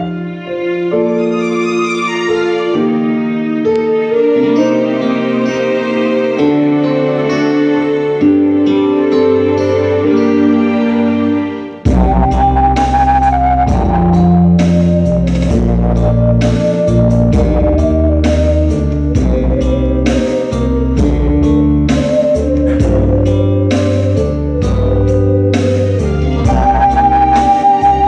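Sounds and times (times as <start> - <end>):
ocarina playing slow melody: 0.0 - 28.0
backing track with drums and guitar: 11.8 - 28.0.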